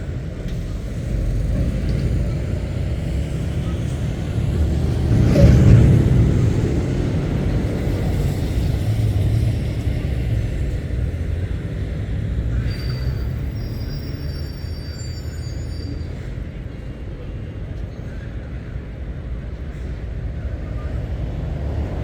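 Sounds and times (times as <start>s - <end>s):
lorry engine passing: 0.0s - 12.6s
thin high whistling tones: 12.6s - 16.2s.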